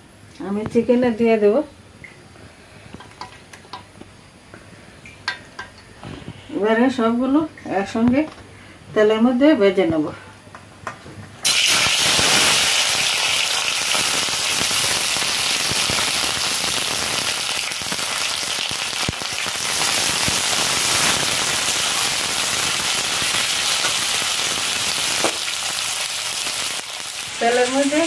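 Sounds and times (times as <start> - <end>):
vegetables sizzling in hot oil: 11.4 - 28.0.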